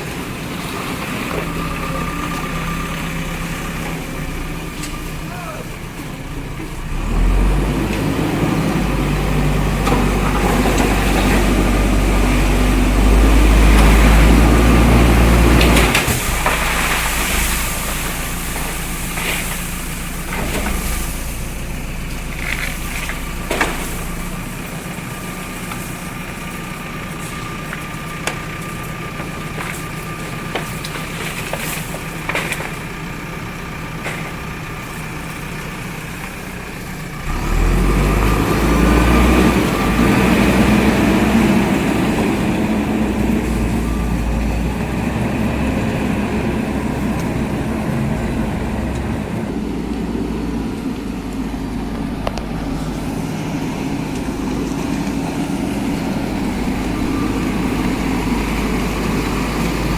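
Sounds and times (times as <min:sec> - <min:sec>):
diesel engine running: 0:00.0 - 0:59.9
knocks and clatter: 0:15.5 - 0:24.4, 0:29.2 - 0:32.8.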